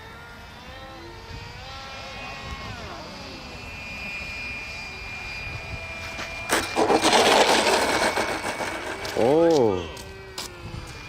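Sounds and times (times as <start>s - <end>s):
model airplane motor whining: 0.0s - 11.0s
loud rushing crackling noise: 6.5s - 9.4s.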